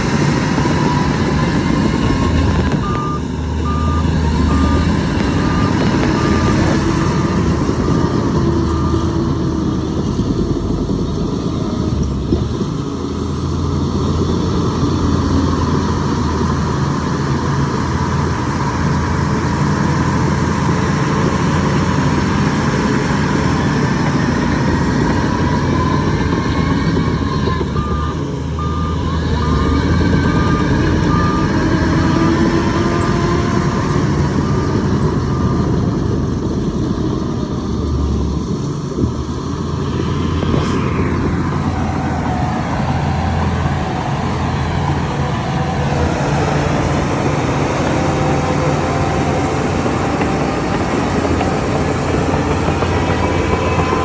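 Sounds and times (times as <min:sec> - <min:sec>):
heavy diesel machinery running: 0:00.0 - 0:54.0
reversing alarm beeping: 0:00.6 - 0:09.2, 0:25.1 - 0:33.1.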